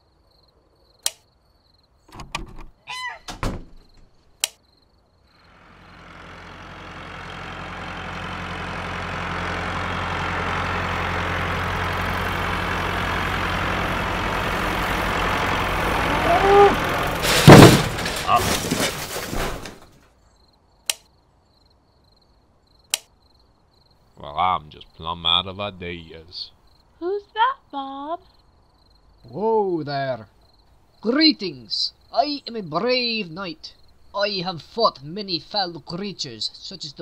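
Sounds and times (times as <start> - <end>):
short clicks: 1.0 - 1.3, 4.4 - 4.6, 20.8 - 21.1, 22.9 - 23.1.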